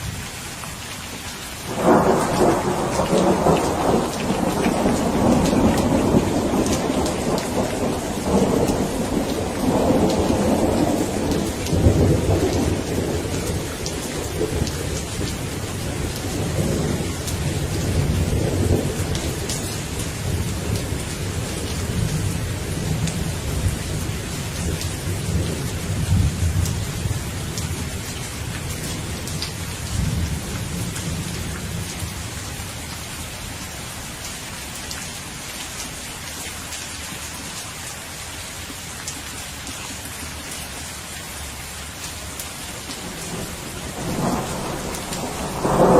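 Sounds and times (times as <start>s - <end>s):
steady rain falling: 0.0s - 45.9s
low rumble of thunder: 1.7s - 32.5s, 42.9s - 45.9s.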